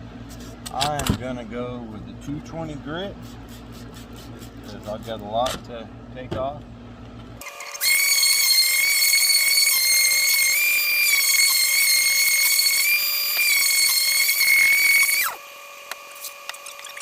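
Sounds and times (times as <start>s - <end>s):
power drill motor whine: 7.4s - 17.0s.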